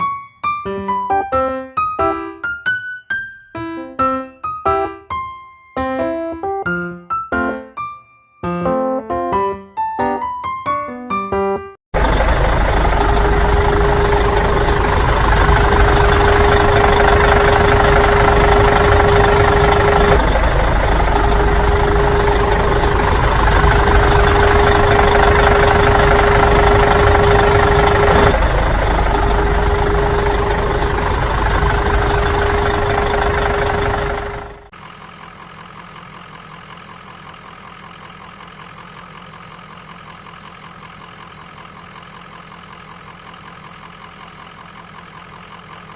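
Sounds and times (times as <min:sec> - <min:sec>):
loud engine running: 0:11.9 - 0:45.9.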